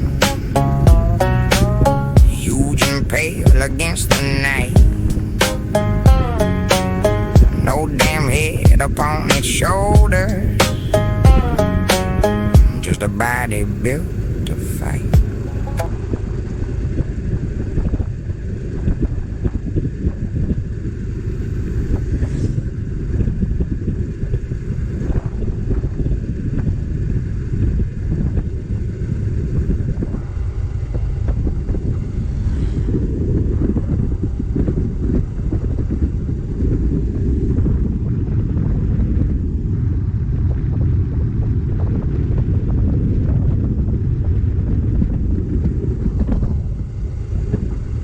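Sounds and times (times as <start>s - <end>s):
wind buffeting microphone: 0.0s - 6.3s, 7.4s - 10.6s, 14.1s - 48.0s
motorcycle engine: 0.0s - 12.9s
road noise: 0.0s - 18.6s.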